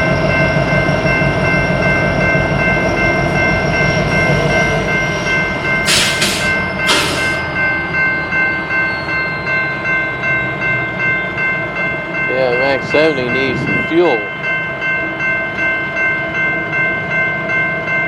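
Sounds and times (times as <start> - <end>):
freight train rolling by: 0.0 - 18.0
high squeal: 5.8 - 7.6
air hisses: 5.9 - 7.4.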